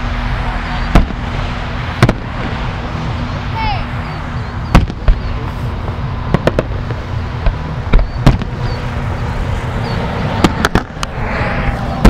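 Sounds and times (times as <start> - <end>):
low background rumble: 0.0 - 12.0
firework shells bursting: 0.9 - 2.7, 4.7 - 9.0, 10.2 - 11.2.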